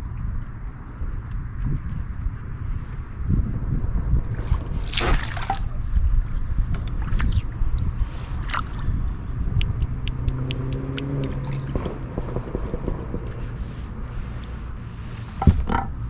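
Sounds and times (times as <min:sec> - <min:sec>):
steady low rumble: 0:00.0 - 0:16.0
water splashing: 0:04.2 - 0:16.0
sharp clicks: 0:09.6 - 0:14.6.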